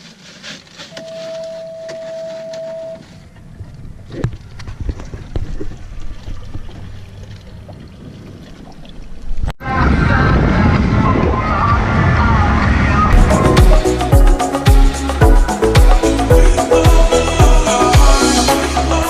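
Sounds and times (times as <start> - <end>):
pure beep tone: 1.0 - 3.0
boat and wind noise: 3.0 - 13.4
loud background music: 13.1 - 19.0.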